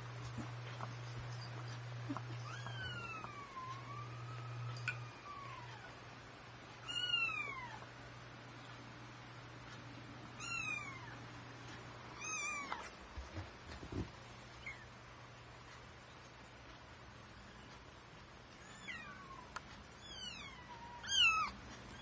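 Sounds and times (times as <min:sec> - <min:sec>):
kittens meowing: 0:02.0 - 0:06.0, 0:18.6 - 0:22.0.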